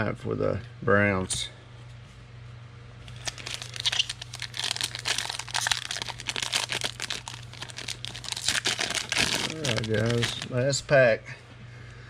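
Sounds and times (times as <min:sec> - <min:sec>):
low steady hum: 0:00.0 - 0:12.0
foil wrapper crinkling: 0:03.1 - 0:10.6.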